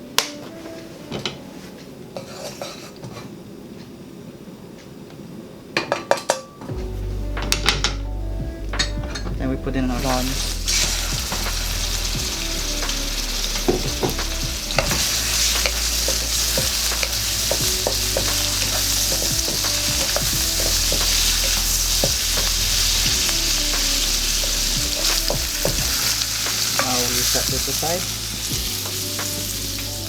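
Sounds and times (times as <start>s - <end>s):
prawns sizzling in a wok: 9.9s - 30.0s.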